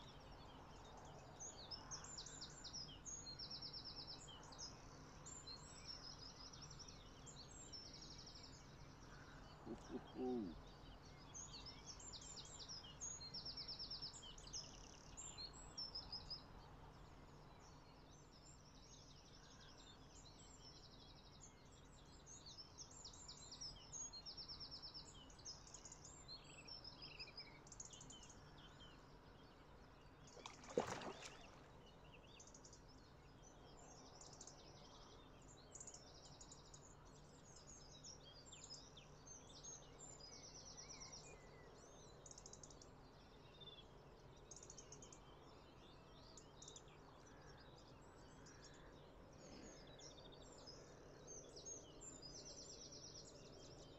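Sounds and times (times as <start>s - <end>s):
faint birdsong chirps and trills: 0.0s - 53.9s.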